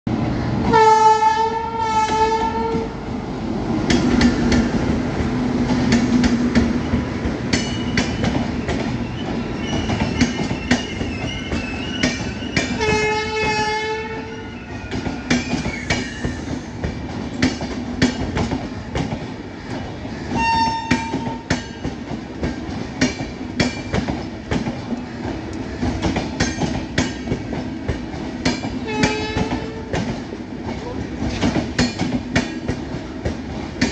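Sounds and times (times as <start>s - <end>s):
train rumble: 0.1s - 33.9s
locomotive horn blasts: 0.7s - 2.9s, 12.8s - 14.4s, 20.4s - 21.4s, 28.8s - 30.0s
wheels clacking on rail joints: 3.8s - 33.9s
high wavering wheel squeal: 7.7s - 13.2s, 14.2s - 16.7s.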